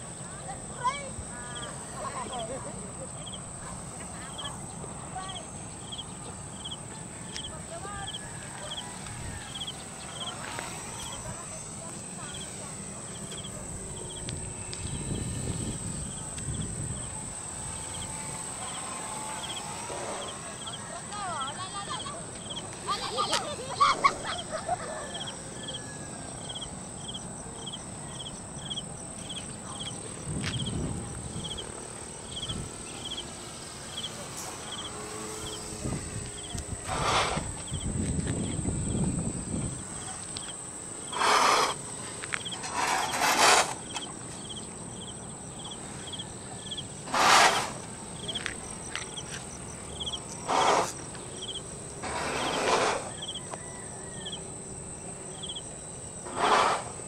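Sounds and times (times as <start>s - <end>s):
insect chirping: 0.0s - 57.0s
short loud noise bursts: 36.8s - 37.6s, 41.1s - 41.8s, 47.0s - 47.9s, 50.4s - 51.0s, 52.0s - 53.2s, 56.2s - 57.0s.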